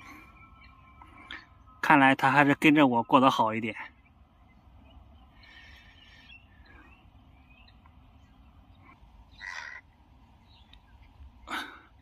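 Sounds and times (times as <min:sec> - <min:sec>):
bird chirps: 0:00.0 - 0:11.8.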